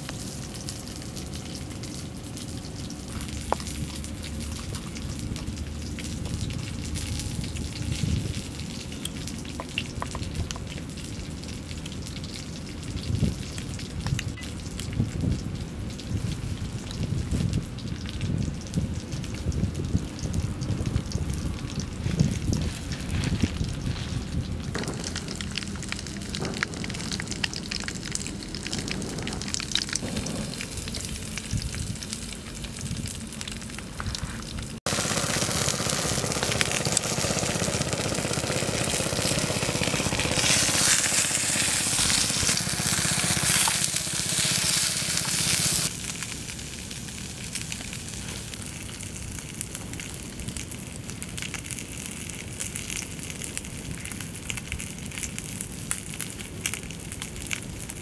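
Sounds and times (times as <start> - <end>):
wood fire crackling and hissing: 0.0 - 58.0
fire pops: 13.0 - 58.0.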